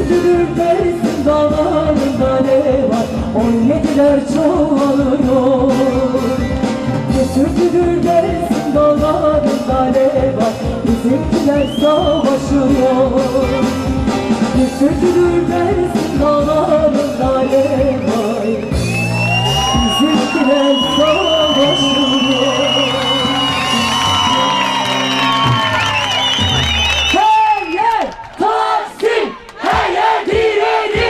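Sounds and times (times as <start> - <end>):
person singing: 0.0 - 18.7, 19.7 - 24.6
live folk band music: 0.0 - 27.2
drum beat: 23.2 - 27.1, 29.6 - 31.0.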